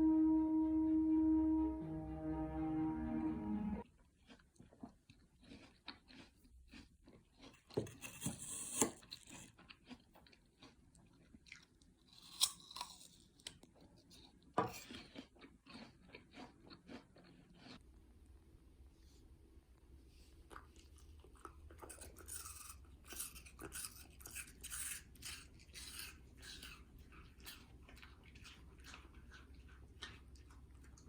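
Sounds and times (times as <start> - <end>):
person chewing crunchy food: 4.0 - 17.8, 20.4 - 31.0.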